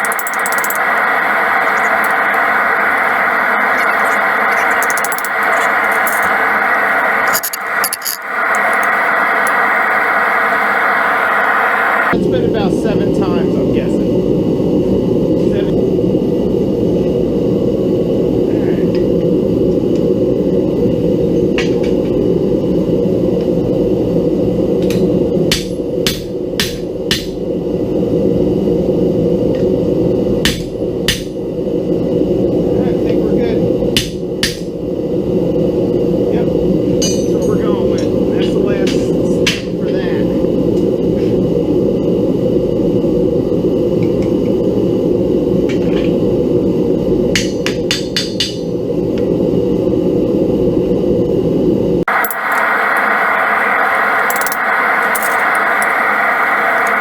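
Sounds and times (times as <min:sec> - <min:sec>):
low rushing noise: 0:00.0 - 0:12.2
forge burner roaring: 0:00.0 - 0:57.0.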